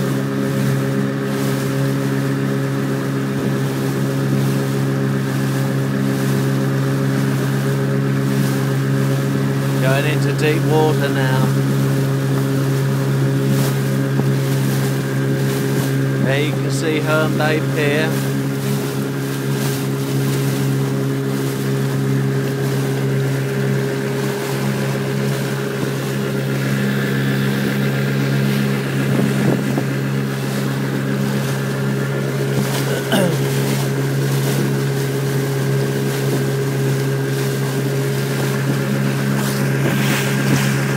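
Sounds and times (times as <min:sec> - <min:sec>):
motorboat engine droning: 0:00.0 - 0:40.9
water hissing along hull: 0:00.0 - 0:40.9
wind on microphone: 0:11.4 - 0:16.7, 0:17.8 - 0:32.9, 0:33.5 - 0:40.9.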